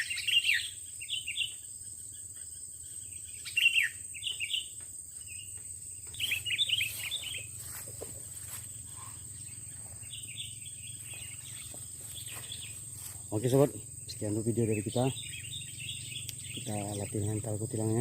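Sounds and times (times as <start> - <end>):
bird chirping: 0.0 - 18.0
steady high-pitched whine: 6.0 - 18.0.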